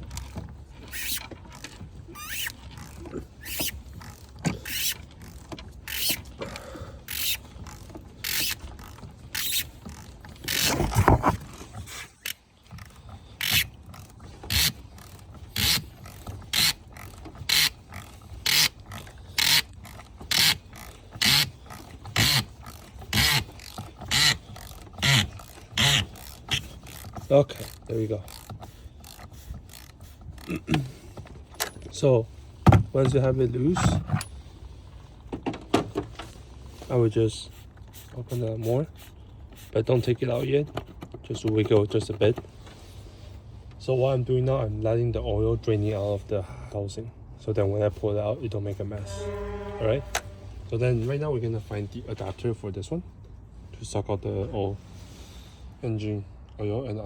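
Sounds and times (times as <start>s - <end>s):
ratchet wrench clicking: 0.2s - 6.3s, 7.1s - 10.8s, 12.2s - 30.5s.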